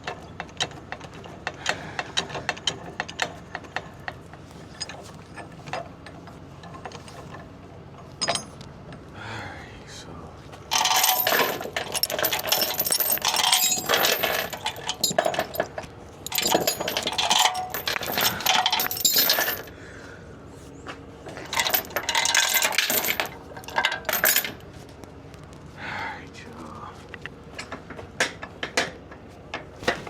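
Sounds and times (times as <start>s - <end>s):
metal chains rattling and clanking: 4.7s - 7.4s, 8.2s - 8.6s, 10.7s - 19.7s, 21.3s - 24.6s.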